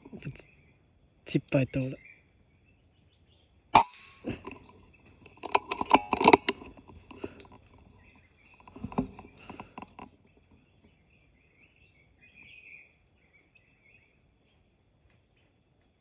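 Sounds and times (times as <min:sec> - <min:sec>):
small birds chirping: 0:00.0 - 0:16.0
knocks and clicks of handling: 0:04.3 - 0:08.0, 0:08.6 - 0:10.2.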